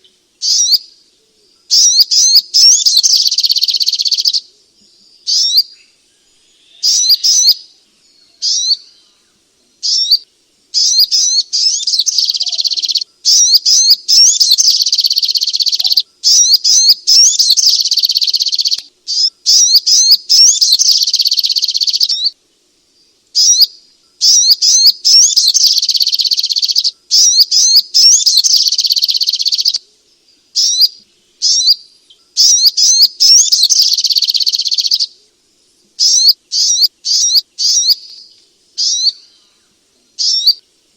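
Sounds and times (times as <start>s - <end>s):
bird chirping and trilling: 0.0s - 0.9s, 1.7s - 4.5s, 5.2s - 9.2s, 9.8s - 22.4s, 23.4s - 29.8s, 30.6s - 35.2s, 36.0s - 39.6s, 40.2s - 40.6s.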